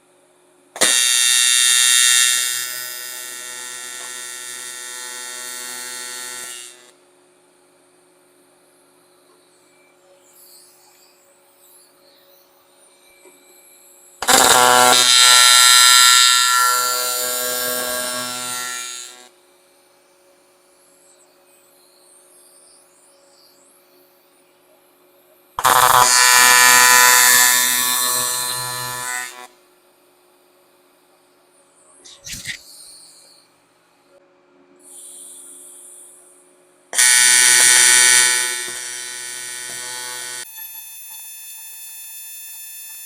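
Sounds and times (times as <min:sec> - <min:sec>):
welding arc buzzing: 0:00.8 - 0:06.9, 0:14.2 - 0:19.3, 0:25.6 - 0:29.5, 0:37.0 - 0:40.8.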